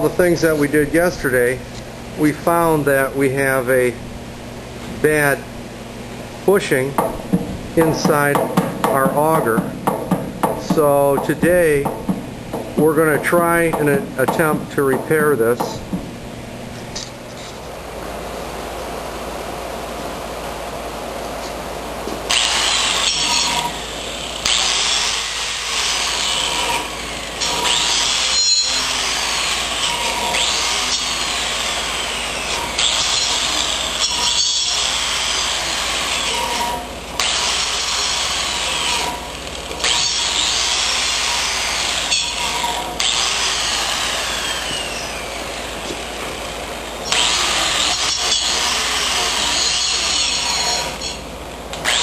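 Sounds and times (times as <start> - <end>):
handheld power tool running: 22.3 - 36.4, 37.2 - 51.2, 51.8 - 52.0.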